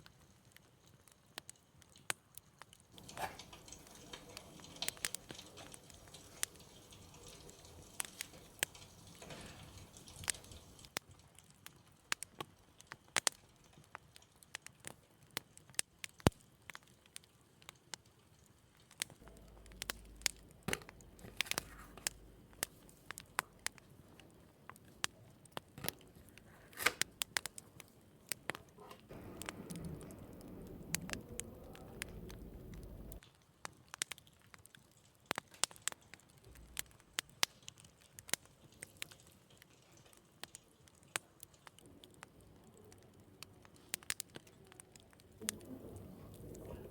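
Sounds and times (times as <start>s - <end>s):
kitchen items clicking and tapping: 3.0s - 10.9s
low hum: 29.1s - 33.2s.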